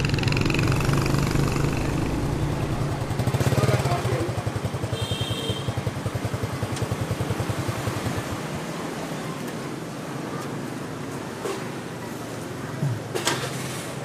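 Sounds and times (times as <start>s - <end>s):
motorbike engine idling: 0.0s - 7.5s
street noise: 0.0s - 14.0s.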